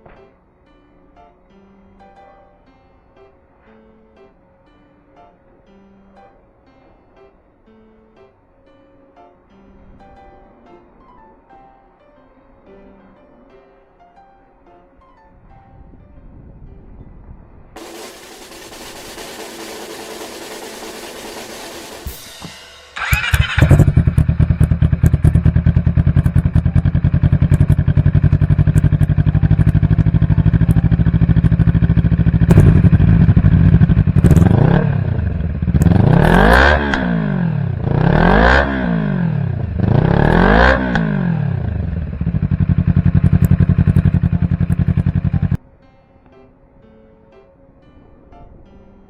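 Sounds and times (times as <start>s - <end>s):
motorcycle engine cranking: 17.8s - 45.6s
motorcycle engine idling and revving: 17.8s - 45.6s.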